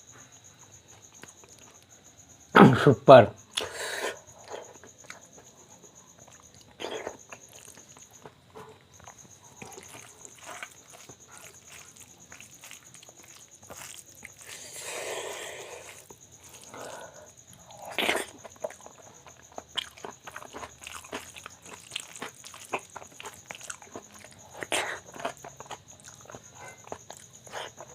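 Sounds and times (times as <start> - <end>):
person chewing food: 0.8 - 2.0, 3.5 - 27.9.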